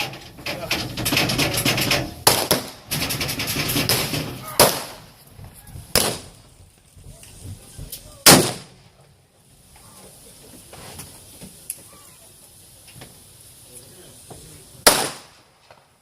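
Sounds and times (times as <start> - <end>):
blank gunshots: 2.2 - 2.9, 3.7 - 5.1, 5.9 - 6.4, 8.2 - 8.8, 14.8 - 15.4.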